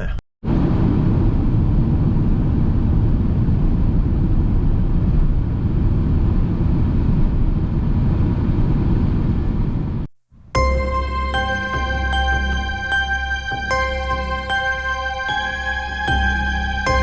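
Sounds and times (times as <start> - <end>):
soft music: 10.5 - 17.0.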